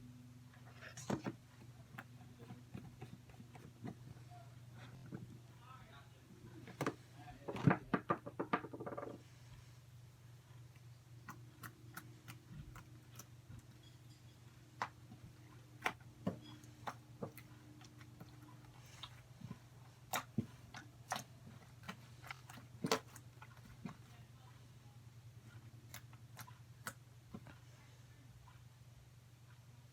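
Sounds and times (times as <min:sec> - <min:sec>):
faint low hum: 0:00.0 - 0:29.9.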